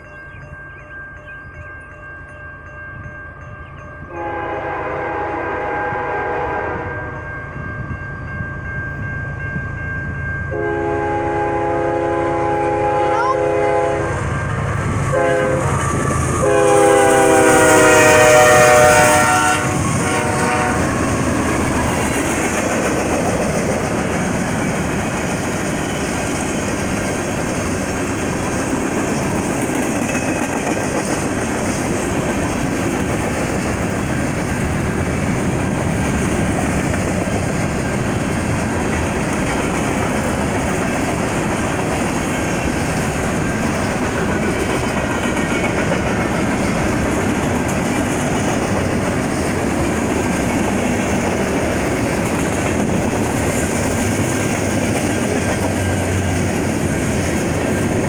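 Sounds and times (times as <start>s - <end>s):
train air horn blasts: 4.1s - 7.2s, 10.5s - 14.3s, 15.1s - 21.0s
freight cars clickety-clack: 19.6s - 58.0s.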